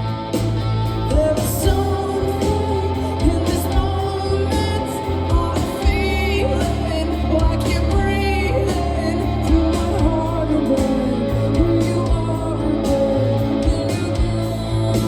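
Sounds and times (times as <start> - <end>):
bass: 0.0 - 15.0
drums: 0.0 - 15.0
electric guitar: 0.0 - 15.0
person singing: 0.9 - 15.0.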